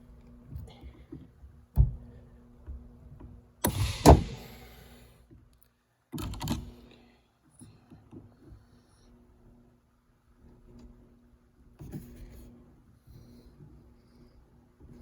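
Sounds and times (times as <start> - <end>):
sharp knock: 3.6 - 4.6.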